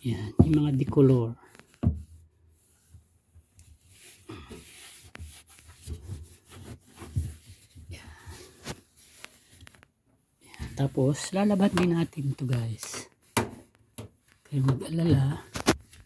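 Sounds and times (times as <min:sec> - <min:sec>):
cloth rag scrubbing: 0:02.5 - 0:09.6, 0:10.8 - 0:16.0.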